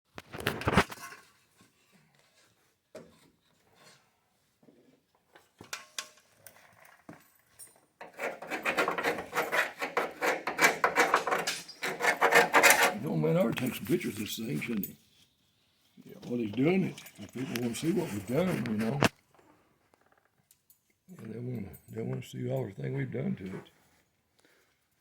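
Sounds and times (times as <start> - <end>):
knocks and rubs: 8.0 - 13.8
rapid rasping strokes: 8.2 - 13.0.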